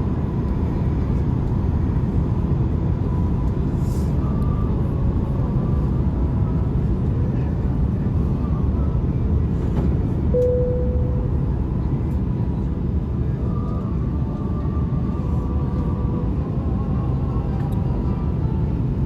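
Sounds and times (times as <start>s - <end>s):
airliner cabin engine rumble: 0.0s - 19.0s
single chime tone: 10.4s - 11.4s.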